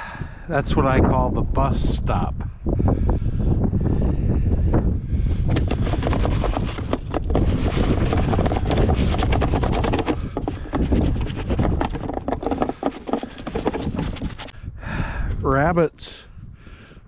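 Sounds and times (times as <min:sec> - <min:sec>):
wind buffeting microphone: 0:00.0 - 0:17.0
rapid crackling: 0:05.5 - 0:14.5.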